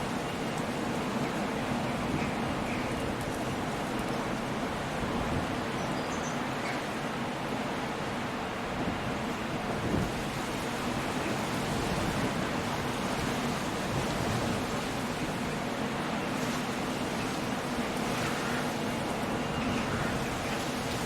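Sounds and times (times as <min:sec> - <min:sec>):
sea surf: 0:00.0 - 0:21.0
rain rushing: 0:09.9 - 0:21.0.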